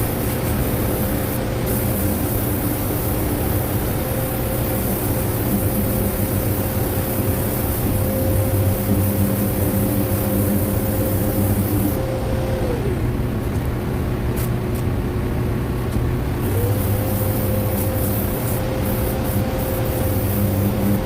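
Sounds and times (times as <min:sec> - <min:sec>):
high hiss: 0:00.0 - 0:12.0, 0:16.4 - 0:21.0
machine hum: 0:00.0 - 0:14.3, 0:15.1 - 0:21.0.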